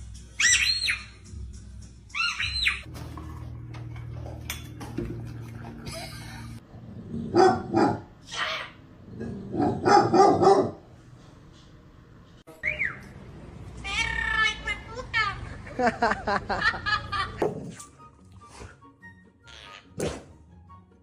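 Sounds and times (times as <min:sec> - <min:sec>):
parrot squawking: 0:02.2 - 0:02.9, 0:19.4 - 0:20.0
dog barking: 0:07.3 - 0:08.1, 0:09.5 - 0:10.9.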